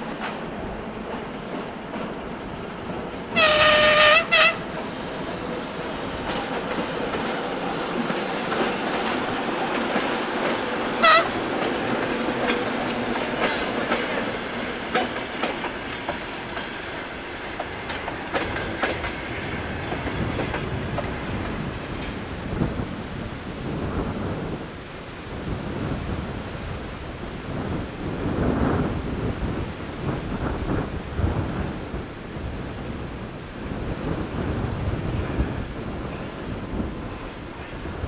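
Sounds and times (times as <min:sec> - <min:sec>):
carriages rumbling over rail joints: 0:00.0 - 0:24.6
locomotive horn: 0:03.3 - 0:04.7, 0:11.0 - 0:11.5.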